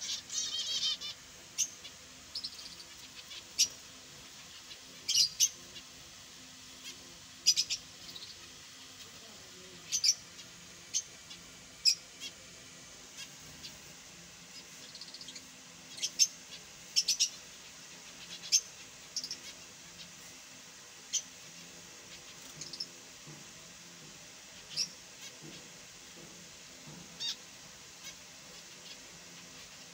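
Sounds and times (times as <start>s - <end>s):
finches chirping: 0.0s - 6.0s, 6.8s - 12.5s, 14.4s - 20.3s, 22.0s - 23.0s, 24.6s - 25.7s, 26.9s - 29.9s.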